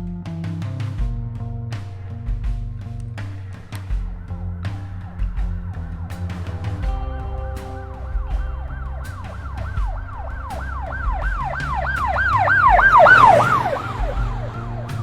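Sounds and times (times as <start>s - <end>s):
police siren yelping: 8.5s - 15.0s.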